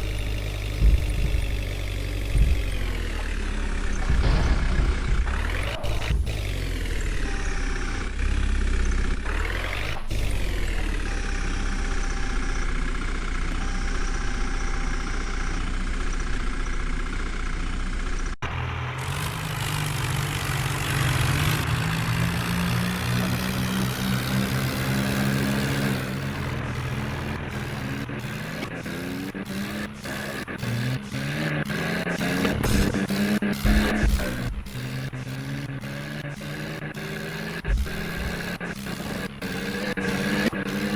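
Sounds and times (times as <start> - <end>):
heavy diesel engines running: 0.0 - 40.9.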